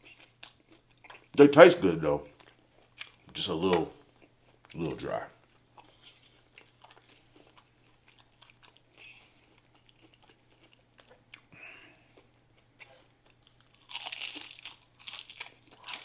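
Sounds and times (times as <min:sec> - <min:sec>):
person chewing food: 0:00.0 - 0:01.4, 0:02.2 - 0:16.0
crunchy bite: 0:13.4 - 0:16.0.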